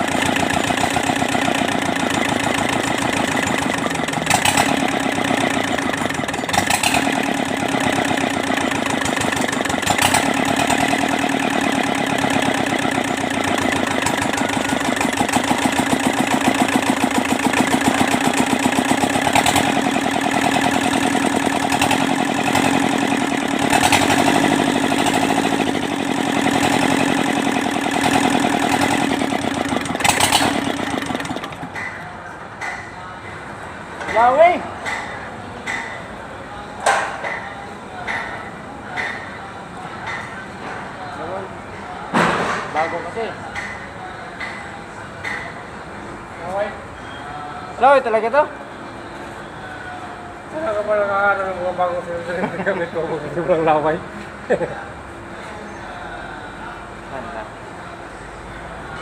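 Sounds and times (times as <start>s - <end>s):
diesel engine running: 0.0s - 32.1s.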